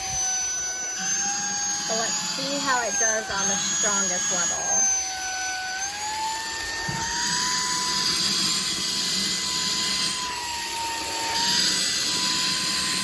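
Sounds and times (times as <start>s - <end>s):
handheld vacuum cleaner whine: 0.0s - 13.0s.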